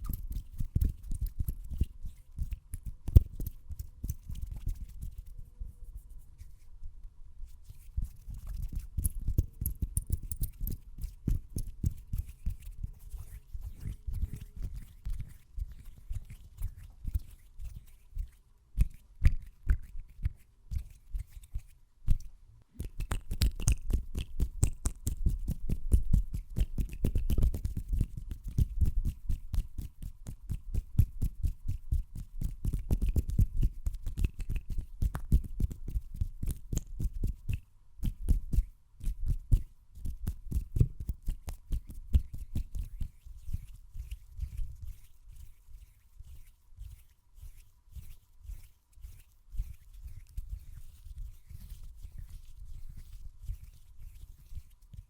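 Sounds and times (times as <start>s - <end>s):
hand strokes near microphone: 3.2s - 9.0s.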